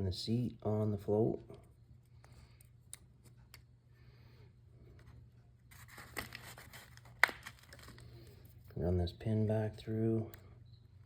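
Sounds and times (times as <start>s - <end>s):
low steady hum: 0.0s - 11.0s
light rustling and fiddling: 4.8s - 8.8s.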